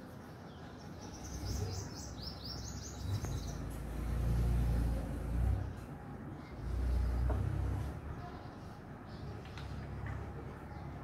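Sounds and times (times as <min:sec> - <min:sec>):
small bird chirping: 0:00.3 - 0:04.3.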